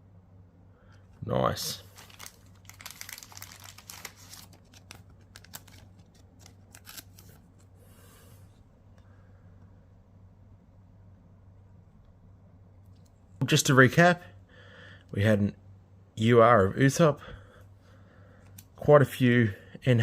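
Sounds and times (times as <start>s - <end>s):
cards and wrapper crinkling: 1.8s - 7.7s.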